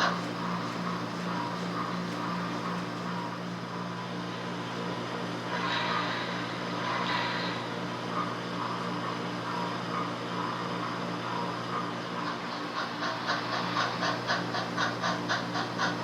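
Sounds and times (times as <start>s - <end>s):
speaker hum with hiss: 0.0s - 7.7s.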